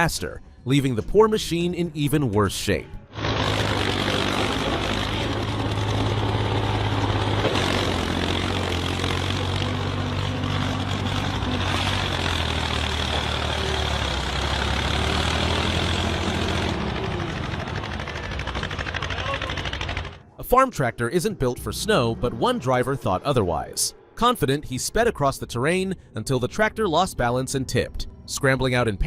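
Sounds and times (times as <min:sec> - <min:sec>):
vehicle engine running: 0:03.0 - 0:20.3.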